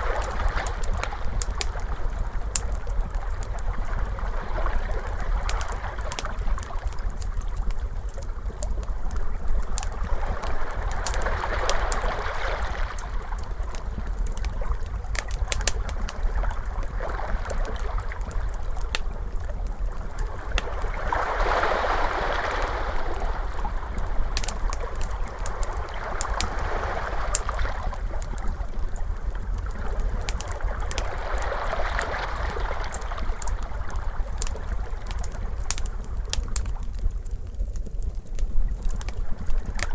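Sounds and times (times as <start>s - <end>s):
wood fire crackling and popping: 0.0s - 39.9s
ocean waves washing: 20.6s - 28.0s.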